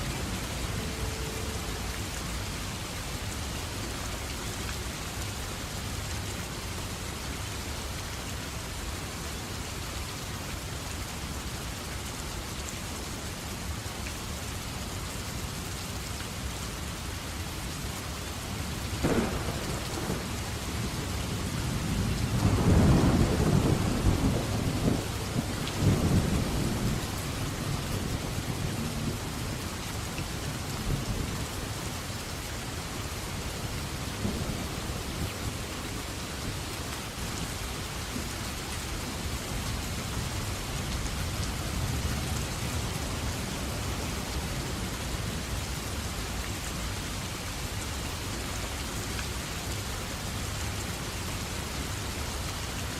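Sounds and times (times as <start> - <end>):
heavy rain: 0.0 - 52.9
thunder crack and rumble: 19.0 - 29.3.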